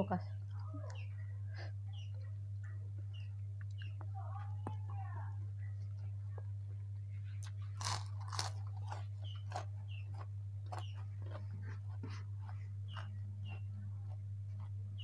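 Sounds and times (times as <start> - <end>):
steady low hum: 0.0 - 15.0
crunchy food chewing: 5.8 - 15.0.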